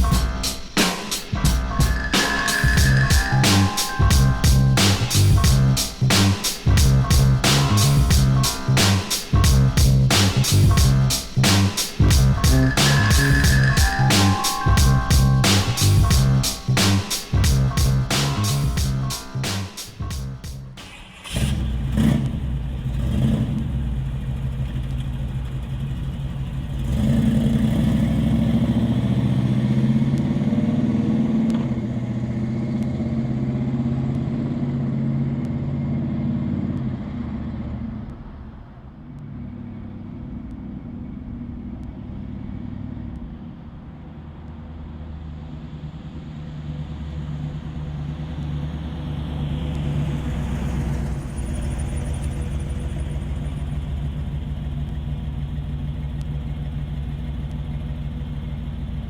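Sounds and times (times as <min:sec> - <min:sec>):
car engine running: 0:02.7 - 0:30.4, 0:48.7 - 0:59.0.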